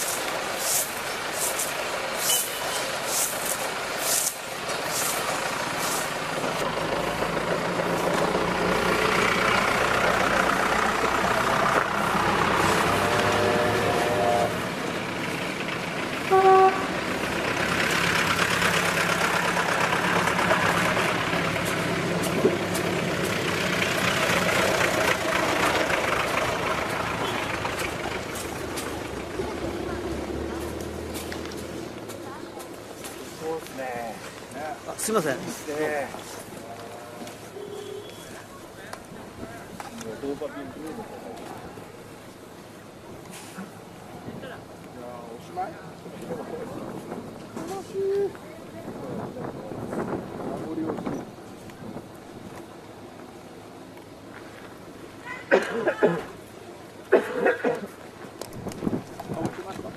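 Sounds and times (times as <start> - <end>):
steam train running: 0.0 - 30.4
train whistle toot: 13.0 - 14.6, 16.3 - 16.9.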